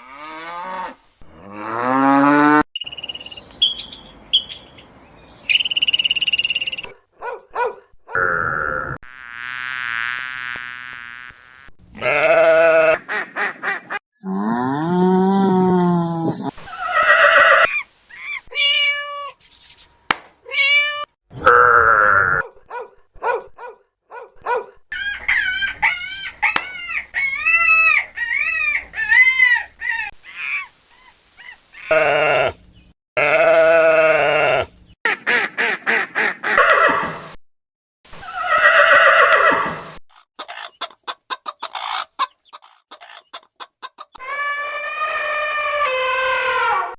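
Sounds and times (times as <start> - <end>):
farm animal calls: 2.4 - 6.9, 11.9 - 13.9, 31.9 - 37.0.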